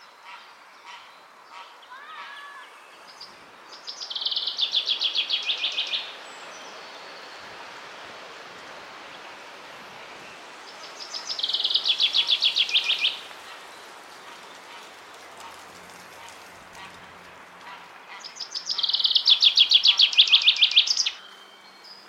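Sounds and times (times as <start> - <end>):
steady background hiss: 0.0 - 22.0
songbird trills: 0.2 - 7.5, 10.1 - 14.6, 18.1 - 22.0.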